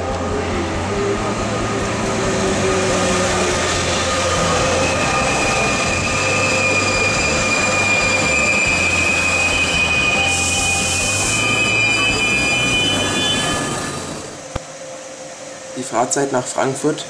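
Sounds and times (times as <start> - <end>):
train coaches rumbling past: 0.0 - 14.5
high-pitched wheel squeal: 2.2 - 14.5.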